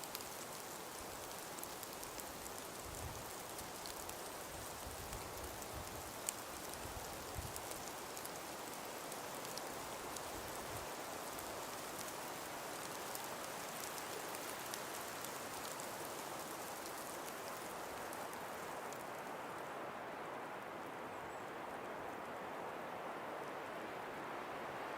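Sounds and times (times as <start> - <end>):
light ticks of ice: 0.0 - 19.7
breeze rushing through forest: 0.0 - 24.9.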